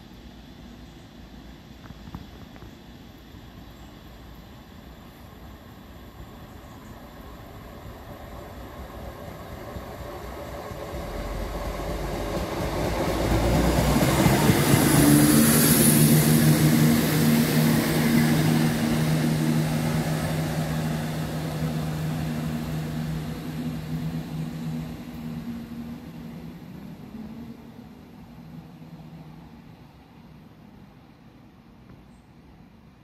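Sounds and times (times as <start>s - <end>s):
wheels rushing on rails: 0.0s - 31.2s
diesel engines humming: 10.9s - 28.0s.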